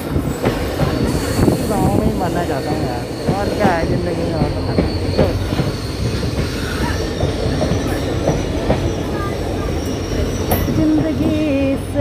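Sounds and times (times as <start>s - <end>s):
train wheels rumbling on rails: 0.0s - 12.0s
high wheel squeals: 2.5s - 11.0s.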